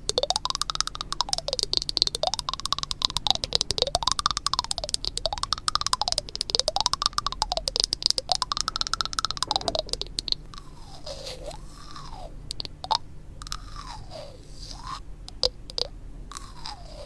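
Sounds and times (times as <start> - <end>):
sharp clicks: 0.0 - 10.5.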